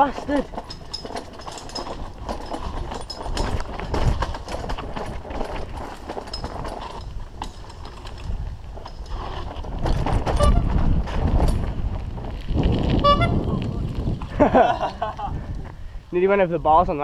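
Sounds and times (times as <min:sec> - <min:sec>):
knocks from rocks and roots: 0:00.0 - 0:13.0
mountain bike rattling on trail: 0:00.0 - 0:15.9
low rumble: 0:09.7 - 0:16.0.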